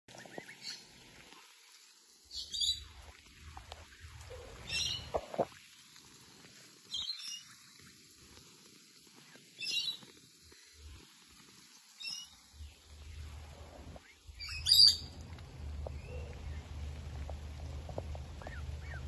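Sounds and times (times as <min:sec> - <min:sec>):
bird chirping: 0:04.2 - 0:05.3, 0:12.0 - 0:19.0.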